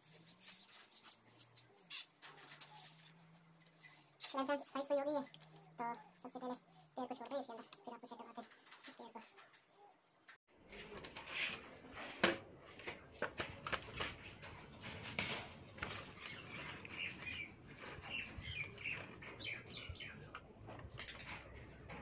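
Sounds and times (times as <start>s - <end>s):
small birds chirping: 0.0s - 9.9s, 15.7s - 21.6s.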